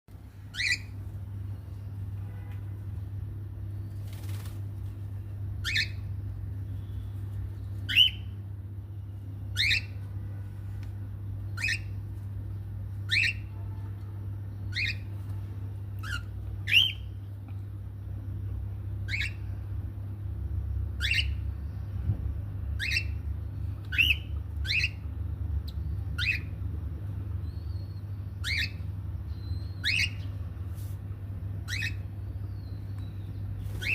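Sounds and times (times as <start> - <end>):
steady low hum: 0.1 - 33.9
cockatiel chick begging calls: 29.8 - 30.3.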